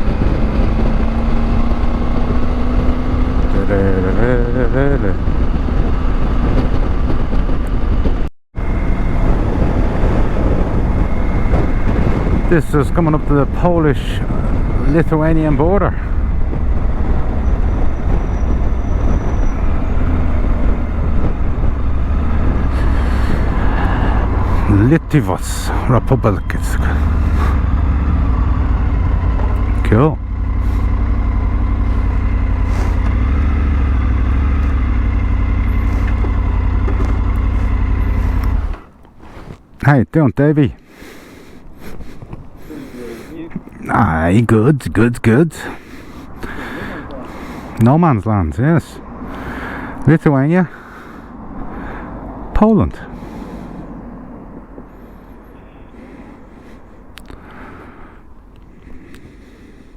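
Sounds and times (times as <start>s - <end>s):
motorbike engine: 0.0s - 39.0s
wind rushing over microphone: 0.0s - 39.7s
road noise: 0.0s - 59.9s.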